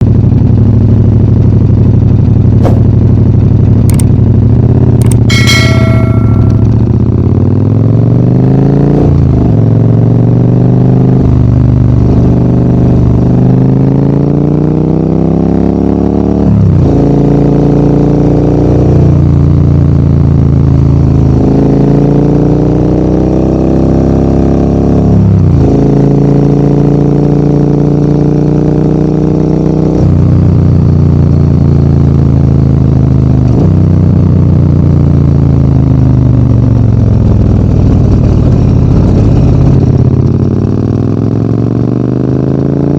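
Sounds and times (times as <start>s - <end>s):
motorcycle engine shifting gears: 2.3s - 7.1s.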